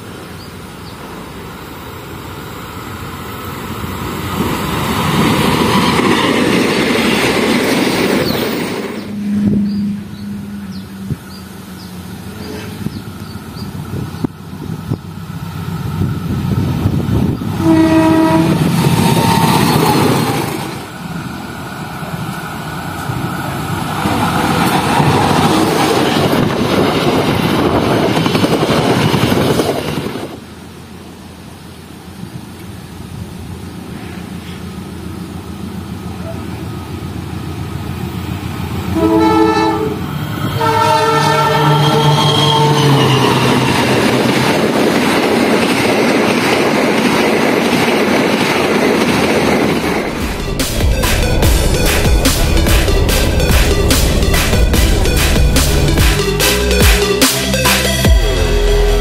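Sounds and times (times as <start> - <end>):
trains rumbling past: 0.0 - 59.0
locomotive horn blasts: 9.1 - 11.2, 17.5 - 18.7, 38.9 - 43.6.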